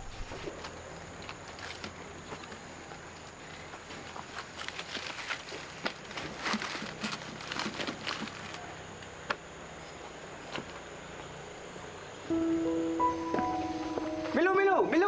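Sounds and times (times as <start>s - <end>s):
clicks and rustles: 0.0s - 9.4s
music: 12.3s - 15.0s.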